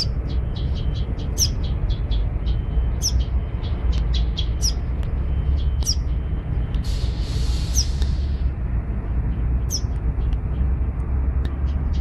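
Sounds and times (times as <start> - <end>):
fledgling bird chirping: 0.0 - 6.3, 6.9 - 8.5, 9.2 - 10.8
bird call sweeping down: 6.9 - 8.4.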